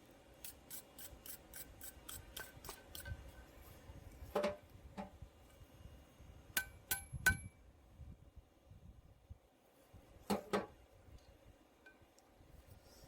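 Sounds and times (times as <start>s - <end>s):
hammer striking steel: 6.6s - 7.5s.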